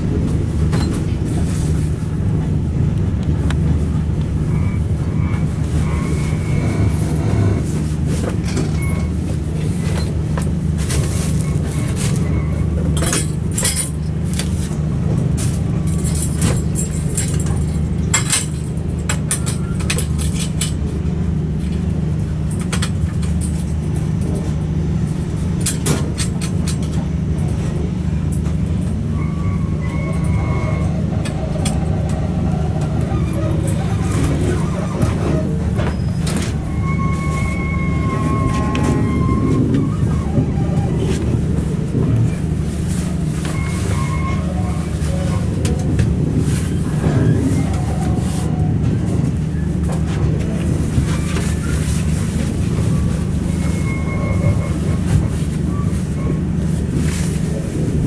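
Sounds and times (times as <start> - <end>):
train carriage rumble: 0.0 - 58.0.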